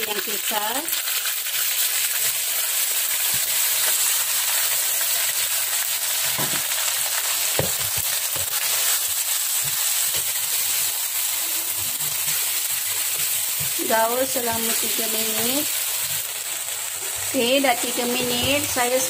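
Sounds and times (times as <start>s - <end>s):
paste sizzling in hot oil: 0.0s - 19.0s
wooden spatula knocking pan: 13.2s - 15.4s.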